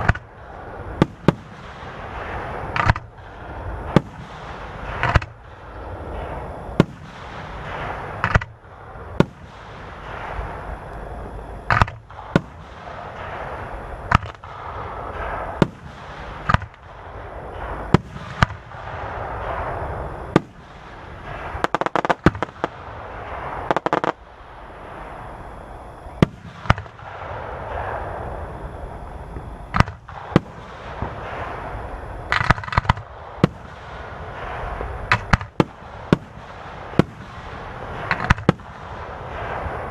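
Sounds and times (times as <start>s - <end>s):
fireworks bangs: 0.0s - 39.9s
fireworks crackling and rumbling: 0.0s - 39.9s.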